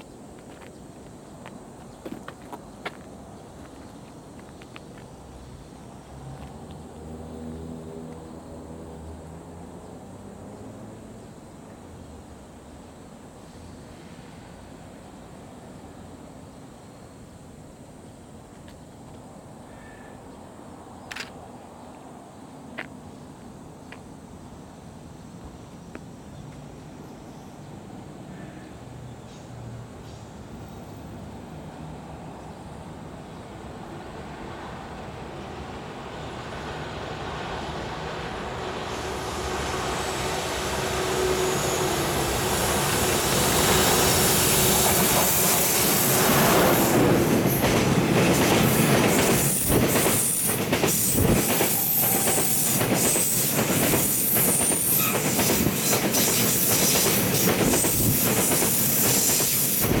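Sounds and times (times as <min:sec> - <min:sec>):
train wheels clattering over rail joints: 0:00.4 - 0:05.0, 0:42.5 - 1:00.0.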